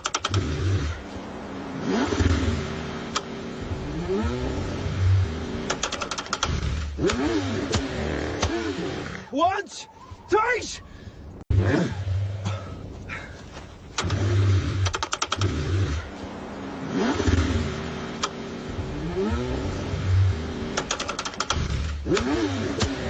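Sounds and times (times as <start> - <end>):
car engine cranking on starter: 0.0 - 0.9, 5.6 - 7.8, 13.9 - 16.0, 20.7 - 23.0
uneven engine noise: 0.0 - 23.0.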